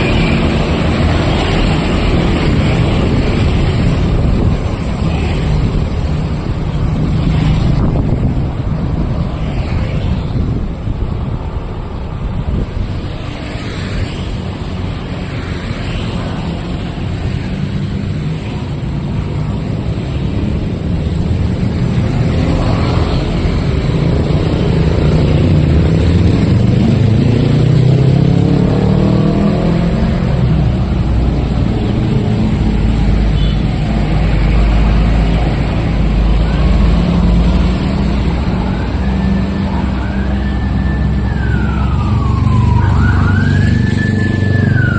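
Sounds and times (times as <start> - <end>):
engine speeding up: 22.2 - 33.0
siren wailing: 38.2 - 44.9.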